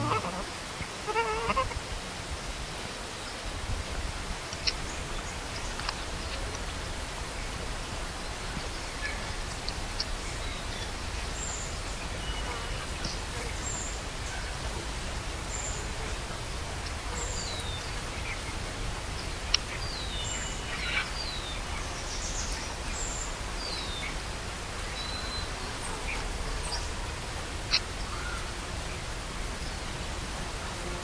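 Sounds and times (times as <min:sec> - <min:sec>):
steady hiss: 0:00.0 - 0:31.0
small birds chirping: 0:16.8 - 0:24.2.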